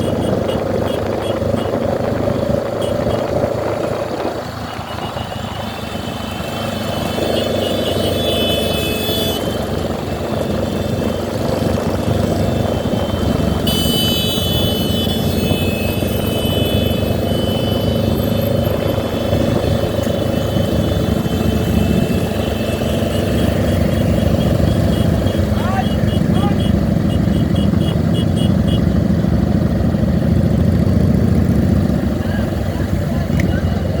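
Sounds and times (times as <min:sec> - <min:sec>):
wind noise: 0:00.0 - 0:07.5, 0:08.7 - 0:25.6
motorcycle engines rumbling: 0:00.0 - 0:34.0.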